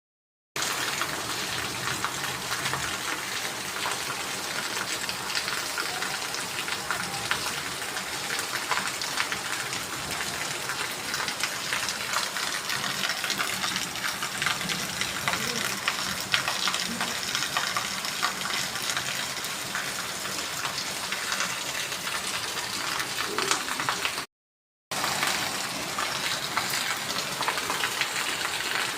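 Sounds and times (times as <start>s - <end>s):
water rushing: 24.9s - 28.9s.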